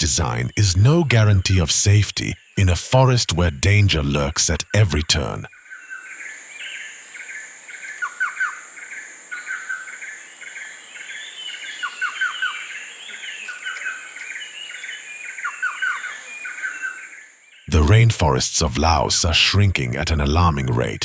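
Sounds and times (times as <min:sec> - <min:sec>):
birds chirping: 0:00.0 - 0:10.2.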